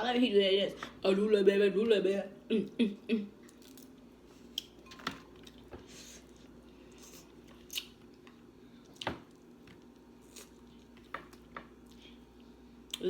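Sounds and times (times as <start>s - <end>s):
faint steady hum: 0.0s - 13.0s
mouth chewing and lip smacks: 6.9s - 13.0s.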